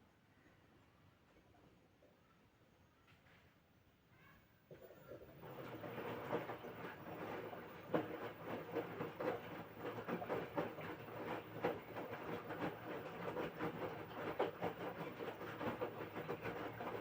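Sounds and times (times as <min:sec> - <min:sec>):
laundry and water sloshing: 0:04.7 - 0:17.0
washing machine drum turning: 0:05.4 - 0:17.0.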